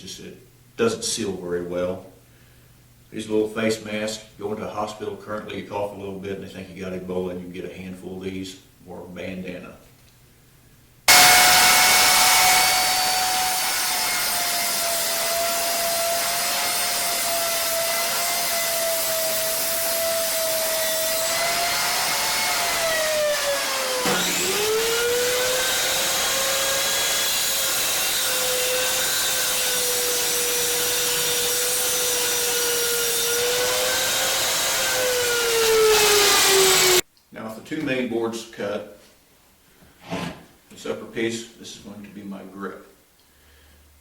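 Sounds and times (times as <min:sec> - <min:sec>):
table saw cutting: 0:11.1 - 0:37.0.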